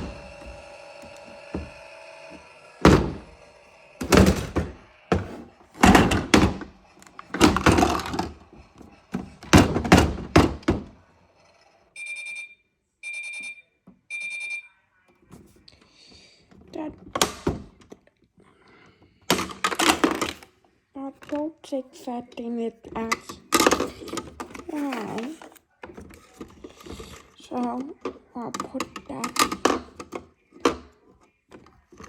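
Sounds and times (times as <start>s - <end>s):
irregular thuds and knocks: 2.8s - 3.3s
washing machine short beeps: 12.0s - 14.7s.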